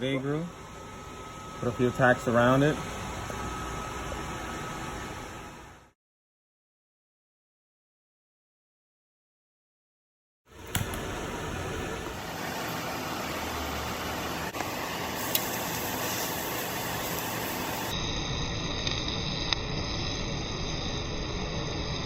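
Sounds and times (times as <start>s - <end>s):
welding arc hissing crackle: 10.5s - 12.2s, 14.6s - 22.0s.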